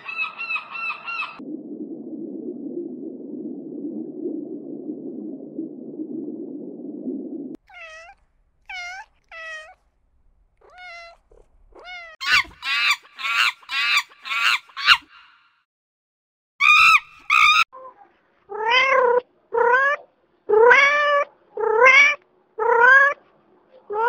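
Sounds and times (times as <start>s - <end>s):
steady low rumble: 1.4s - 7.6s
cat meowing: 7.6s - 9.8s, 10.6s - 12.6s.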